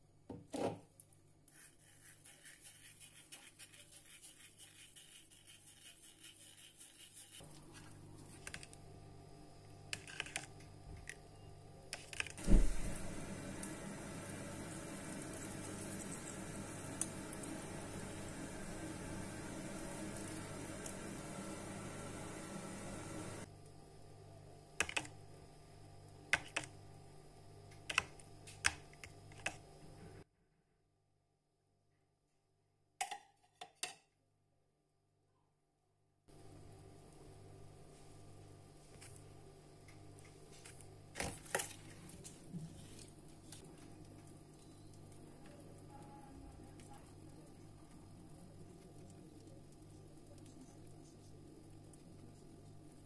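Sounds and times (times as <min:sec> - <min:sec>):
low steady hum: 0:04.0 - 0:30.3
low hum: 0:12.4 - 0:23.5.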